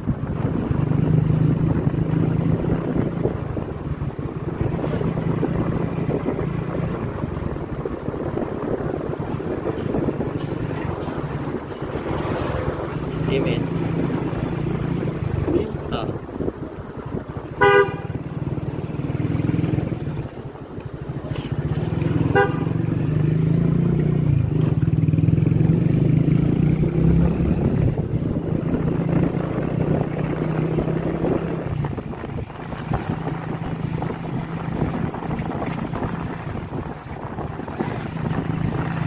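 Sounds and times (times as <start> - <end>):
motorcycle engine running: 0.0 - 39.0
vehicle horn honk: 17.6 - 18.2, 22.2 - 22.7.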